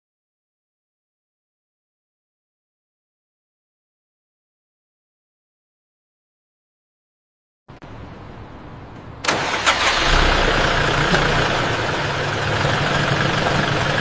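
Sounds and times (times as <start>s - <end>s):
car engine starting and idling: 8.9s - 14.0s.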